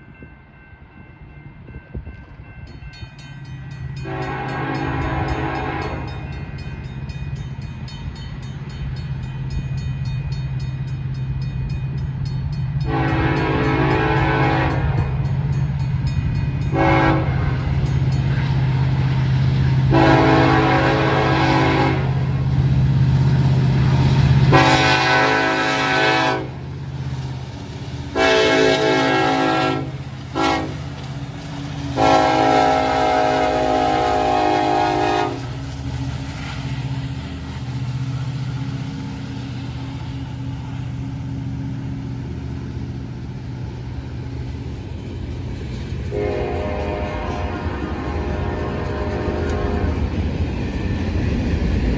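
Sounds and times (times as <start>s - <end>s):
freight train rumbling past: 0.0s - 51.9s
locomotive air horn blasts: 4.0s - 6.3s, 12.8s - 15.1s, 16.7s - 17.7s, 19.9s - 22.2s, 24.5s - 26.6s, 28.1s - 30.8s, 32.0s - 35.6s, 46.1s - 50.1s.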